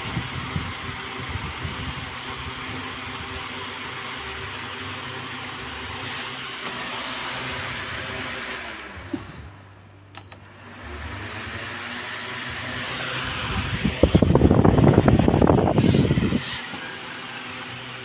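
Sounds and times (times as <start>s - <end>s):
electric fan running: 0.0s - 18.0s
fan clicks: 9.9s - 10.5s, 13.5s - 16.8s.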